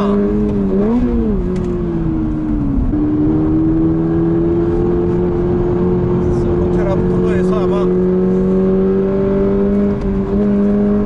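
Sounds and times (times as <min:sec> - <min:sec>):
car engine running: 0:00.0 - 0:11.0
road noise: 0:00.0 - 0:11.0.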